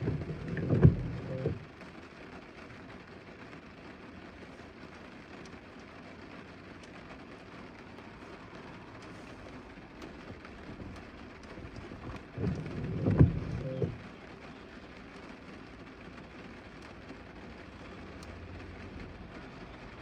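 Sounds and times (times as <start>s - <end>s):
steady rain: 0.0s - 20.0s
low rumble: 12.2s - 14.0s.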